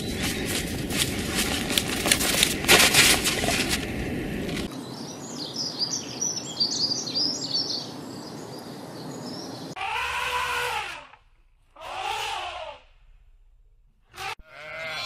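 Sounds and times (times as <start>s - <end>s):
small birds chirping: 0.0s - 1.9s, 4.7s - 9.8s
steady outdoor hiss: 0.0s - 9.8s
drawn-out animal calls: 9.8s - 11.1s, 11.8s - 12.8s.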